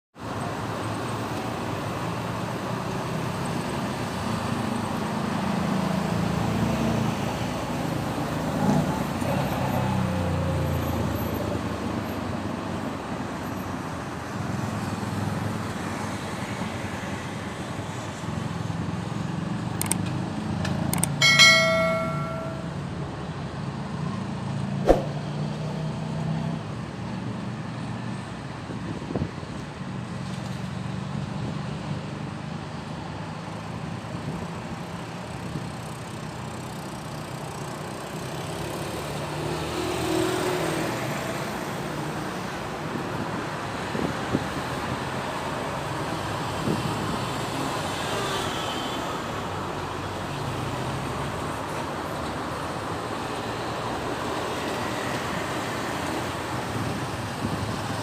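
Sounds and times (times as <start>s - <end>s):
road traffic rumble: 0.2s - 58.0s
sharp clicks: 19.8s - 20.1s, 20.9s - 21.2s.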